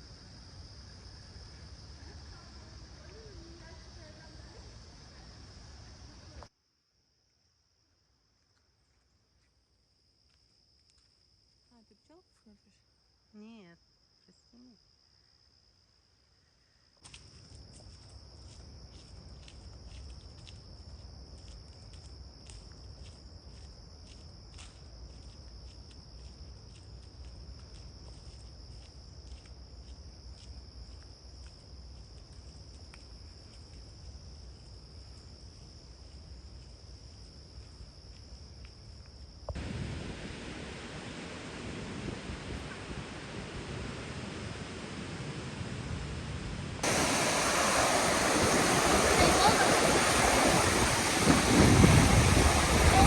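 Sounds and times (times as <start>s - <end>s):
insects trilling: 0.0s - 6.5s, 46.8s - 53.0s
wind noise on microphone: 39.5s - 53.0s.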